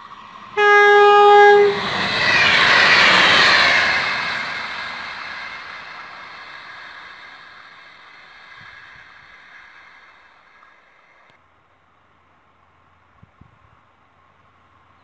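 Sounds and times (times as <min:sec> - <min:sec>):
passenger train running: 0:00.0 - 0:11.4.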